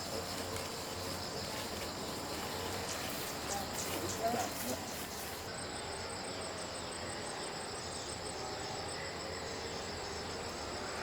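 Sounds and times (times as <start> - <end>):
background hiss: 0.0 - 11.0
insects trilling: 0.0 - 11.0.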